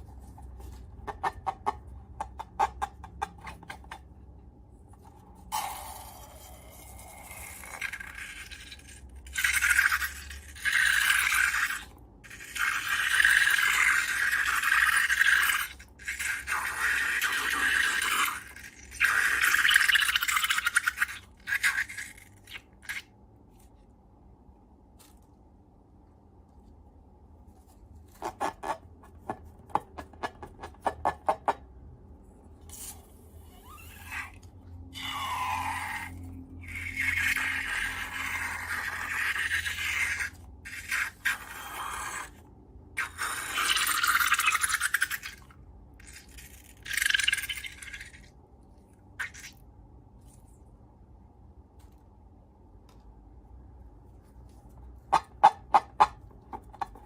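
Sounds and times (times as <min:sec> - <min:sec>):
slime squeak: 0:32.7 - 0:42.4.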